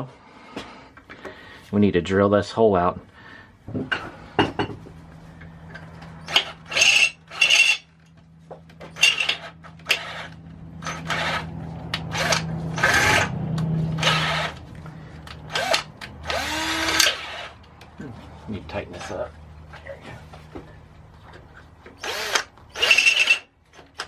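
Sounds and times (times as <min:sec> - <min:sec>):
electric drill running: 0:06.2 - 0:07.8, 0:09.0 - 0:13.3, 0:14.0 - 0:14.6, 0:15.5 - 0:17.6, 0:22.0 - 0:23.5
drill bit grinding: 0:06.2 - 0:07.9, 0:09.0 - 0:13.3, 0:14.0 - 0:14.6, 0:15.5 - 0:17.6, 0:22.0 - 0:23.5.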